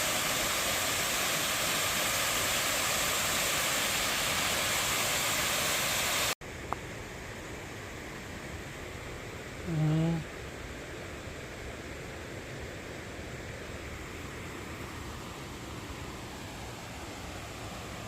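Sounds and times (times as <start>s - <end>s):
stream water rushing: 0.0s - 6.4s, 13.5s - 18.0s
quiet hiss: 0.0s - 18.0s.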